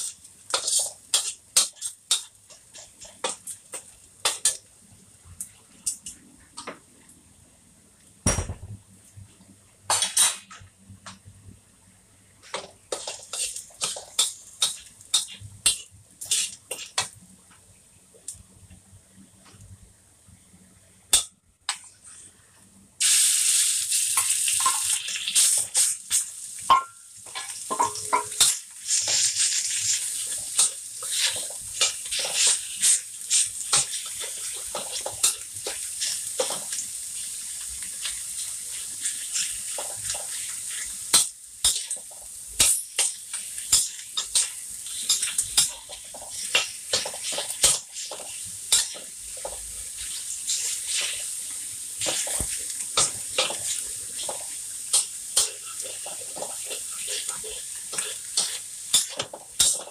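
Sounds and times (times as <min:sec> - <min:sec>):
meat sizzling in a wok: 0:00.0 - 0:05.8, 0:12.4 - 0:17.2, 0:23.0 - 0:59.9.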